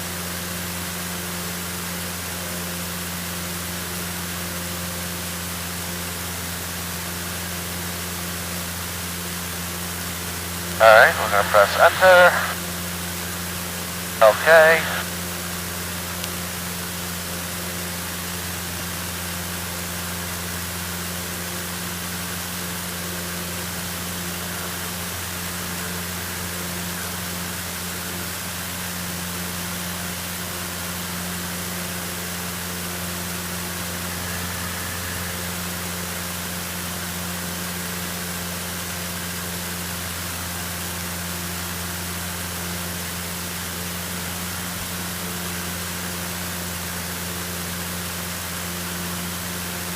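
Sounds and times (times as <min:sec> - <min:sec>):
propeller plane engine droning: 0:30.1 - 0:38.0.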